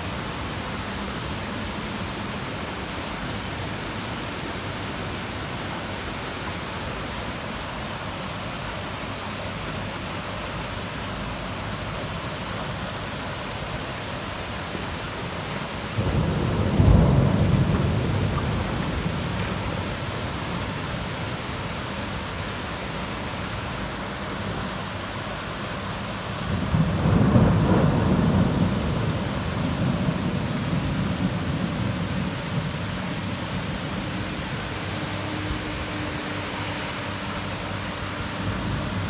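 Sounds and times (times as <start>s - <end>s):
heavy rain falling: 0.0s - 39.0s
low rumble of thunder: 15.7s - 21.4s, 26.4s - 39.0s.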